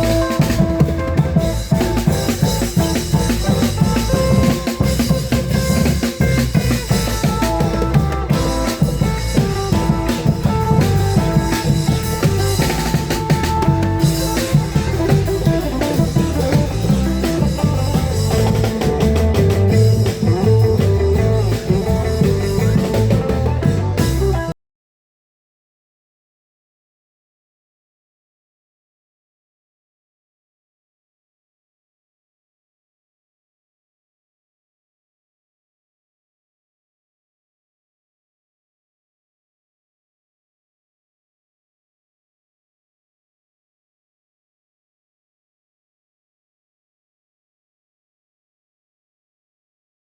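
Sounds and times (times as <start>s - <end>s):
steady drumming: 0.0s - 24.5s.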